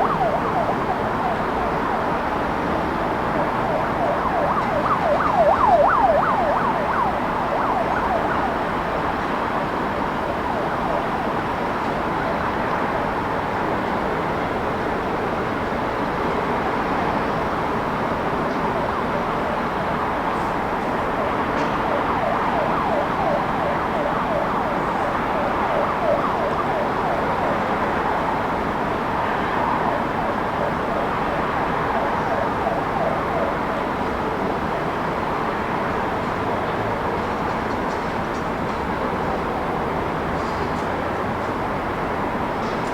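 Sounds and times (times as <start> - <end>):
distant siren yelping: 0.0 - 12.7, 21.2 - 34.4
city traffic noise: 0.0 - 42.9.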